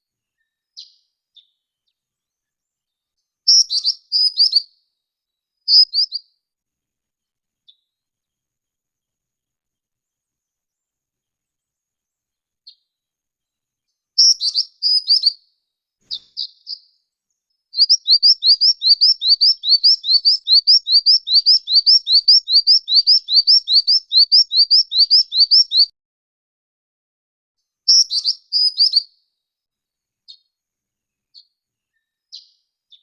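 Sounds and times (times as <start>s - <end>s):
bird high chirps: 0.3s - 4.8s, 5.6s - 6.3s, 13.9s - 25.9s, 27.9s - 29.2s, 30.3s - 30.5s, 31.3s - 33.0s
bird calling with rising notes: 17.8s - 25.9s.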